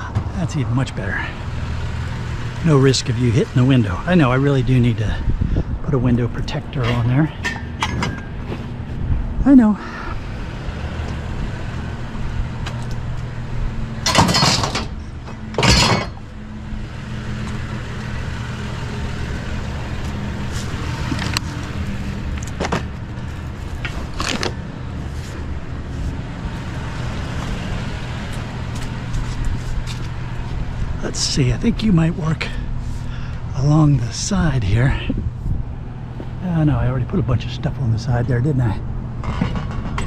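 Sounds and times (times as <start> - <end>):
vehicle engine humming: 0.0 - 40.0.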